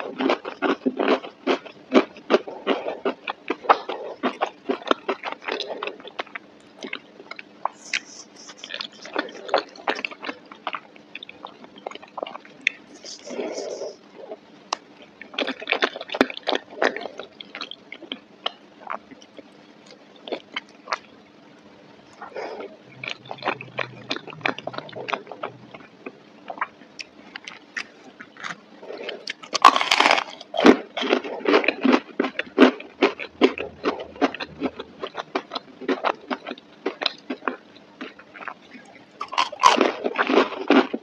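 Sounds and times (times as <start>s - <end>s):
chewing soft food: 0.0s - 41.0s
crunchy bite and chewing: 22.1s - 41.0s.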